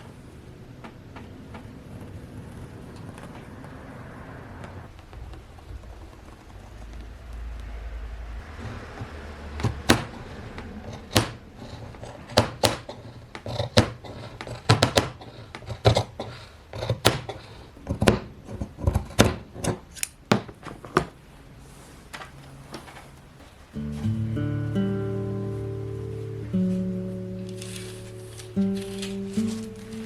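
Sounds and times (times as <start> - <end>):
scissors snipping: 27.4 - 30.0.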